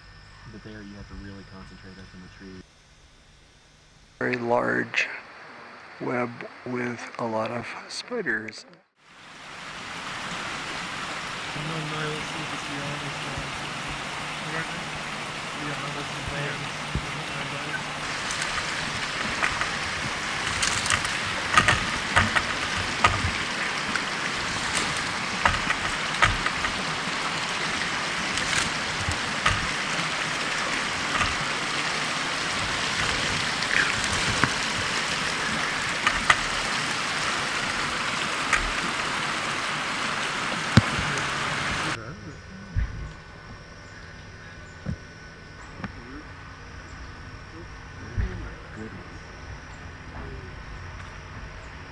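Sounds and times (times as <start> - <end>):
water hissing: 0.0 - 2.7, 9.0 - 51.9
sharp ticks and drops: 10.2 - 41.9.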